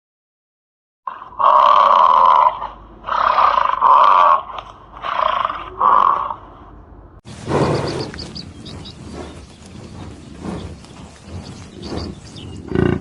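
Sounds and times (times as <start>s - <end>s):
animal calling roughly: 1.1s - 6.5s.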